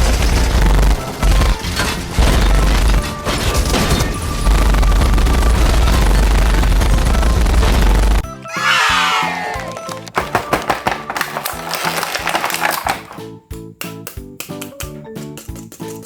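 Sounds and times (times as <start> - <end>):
action soundtrack with bangs and booms: 0.0 - 9.8.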